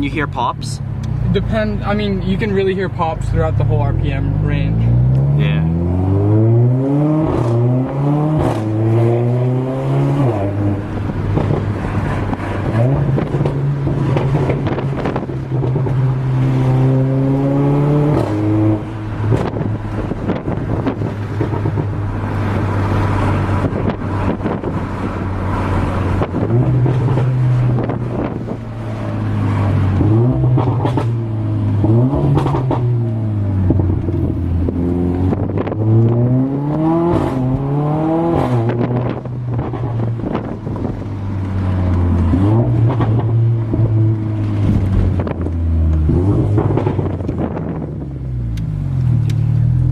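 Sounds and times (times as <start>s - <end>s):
car engine accelerating: 0.0s - 49.9s
exhaust pops and crackles: 7.2s - 8.8s, 10.2s - 16.9s, 18.0s - 37.7s, 38.3s - 49.9s.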